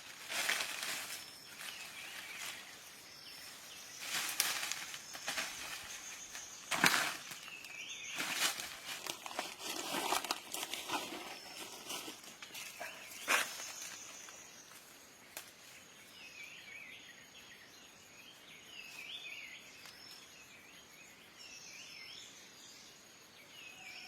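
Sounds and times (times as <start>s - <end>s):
rustling and crunching leaves: 0.0s - 14.4s.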